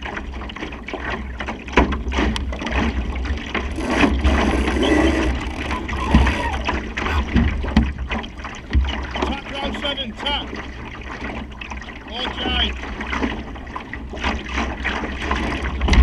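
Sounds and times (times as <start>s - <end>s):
water rushing along hull: 0.0s - 16.0s.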